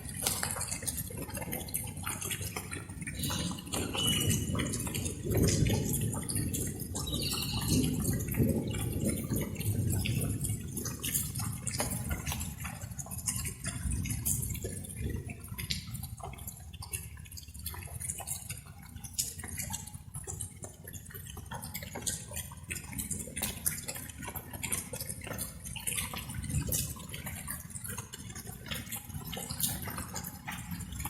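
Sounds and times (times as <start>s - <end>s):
raindrops dripping: 0.0s - 31.0s.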